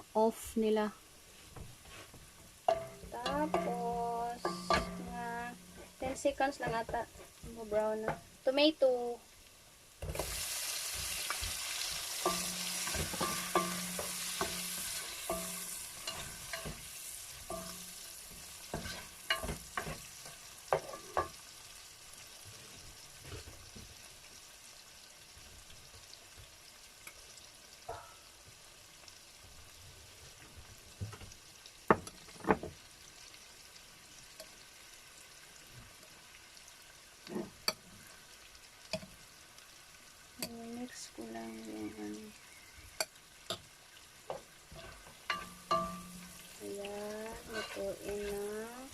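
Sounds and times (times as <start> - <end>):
tomatoes sizzling in hot pan: 0.0 - 48.9
utensil stirring and knocking pan: 1.5 - 8.4, 10.0 - 21.5, 27.9 - 28.3, 31.0 - 32.8, 44.3 - 48.9.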